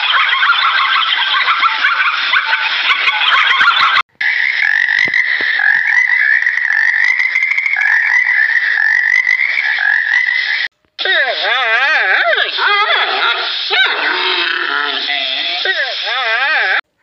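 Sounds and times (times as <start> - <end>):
frogs croaking chorus: 4.2 - 10.7.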